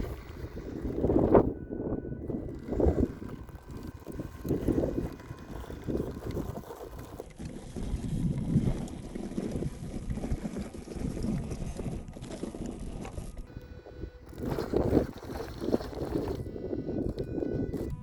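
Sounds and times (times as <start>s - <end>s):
toy truck motor running: 0.0s - 7.8s, 13.1s - 18.0s
wind buffeting microphone: 0.0s - 18.0s.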